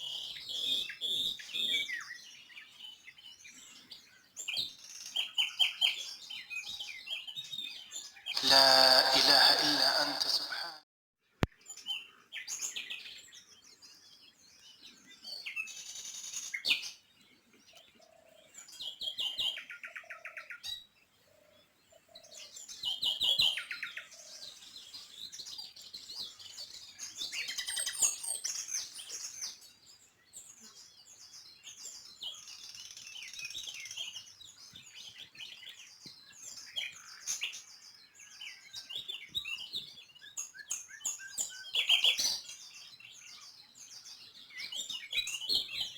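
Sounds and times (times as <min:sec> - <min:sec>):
songbirds chirping: 0:00.0 - 0:10.5, 0:11.3 - 0:45.9.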